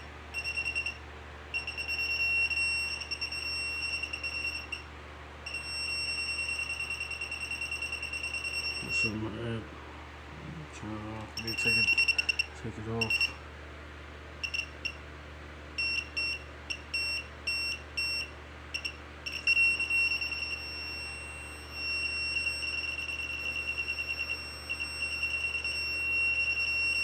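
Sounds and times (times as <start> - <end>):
detector high-pitched beeps: 1.6 - 4.8, 5.5 - 9.2, 11.4 - 13.4, 15.8 - 27.0.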